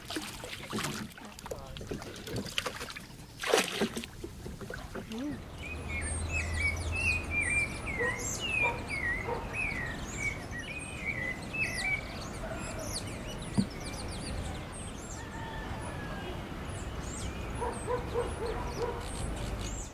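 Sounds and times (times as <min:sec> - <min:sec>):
high bird chirps: 0:05.4 - 0:15.5.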